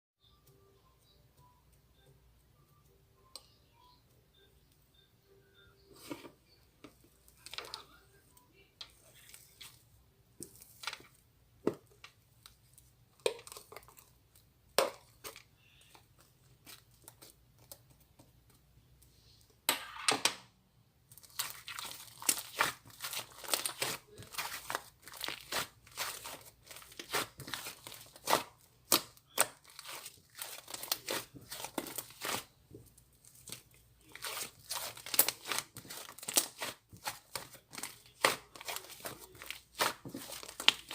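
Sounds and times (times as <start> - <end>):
slime crackling and popping: 21.2 - 32.5, 33.2 - 40.9.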